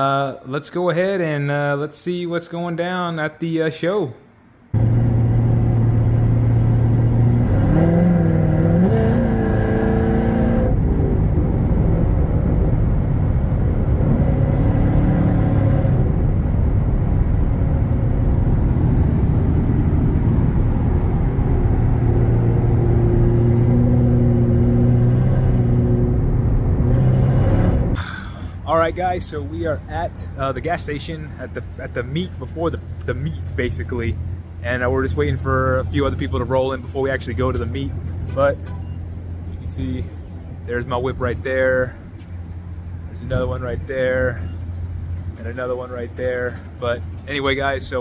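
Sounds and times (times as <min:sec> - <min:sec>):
car engine accelerating: 0:04.7 - 0:28.2.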